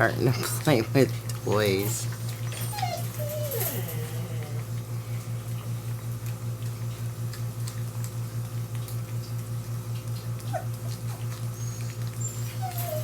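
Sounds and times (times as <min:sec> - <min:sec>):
puppy squeak: 0:02.2 - 0:04.0, 0:11.6 - 0:13.0.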